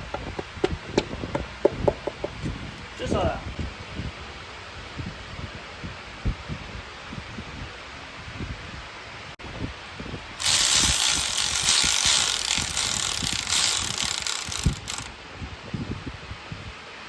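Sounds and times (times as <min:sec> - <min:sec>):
metal parts clicking and knocking: 0:10.4 - 0:15.1.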